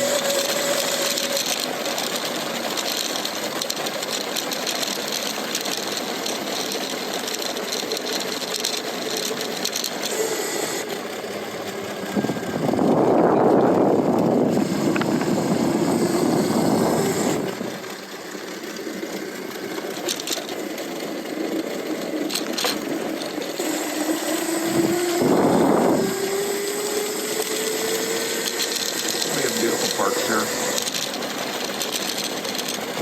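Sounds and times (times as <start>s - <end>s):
electric bike motor whining: 0.0s - 33.0s
wind on microphone: 12.1s - 17.7s, 24.6s - 26.4s.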